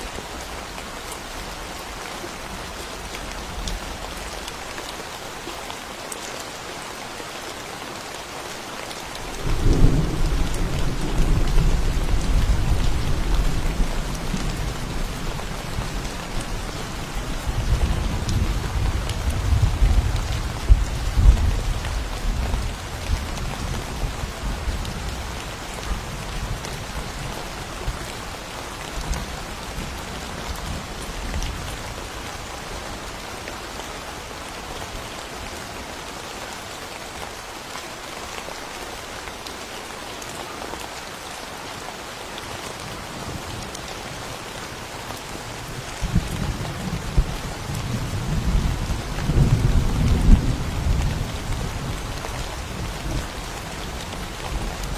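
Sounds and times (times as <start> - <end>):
steady rain falling: 0.0 - 54.9
low rumble of thunder: 9.3 - 28.0, 45.6 - 54.9.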